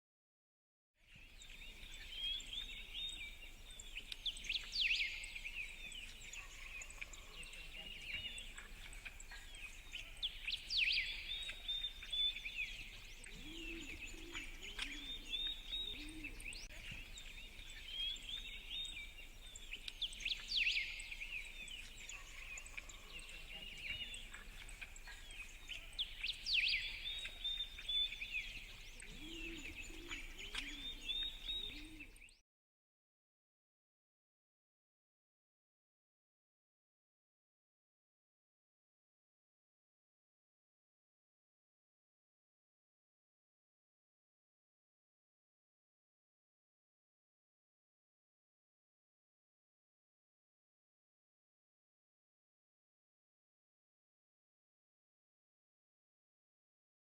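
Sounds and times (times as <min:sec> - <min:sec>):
outdoor background noise: 0:01.0 - 0:32.4
birds chirping: 0:01.2 - 0:32.4.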